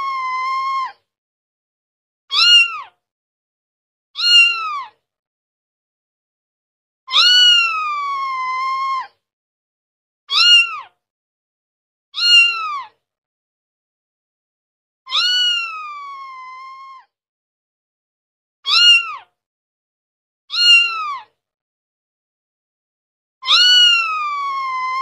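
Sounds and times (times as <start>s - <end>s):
kitten meowing: 0.0s - 1.0s, 2.3s - 2.9s, 4.2s - 5.0s, 7.1s - 9.1s, 10.3s - 10.9s, 12.2s - 12.9s, 15.1s - 17.1s, 18.7s - 19.2s, 20.5s - 21.3s, 23.4s - 25.0s.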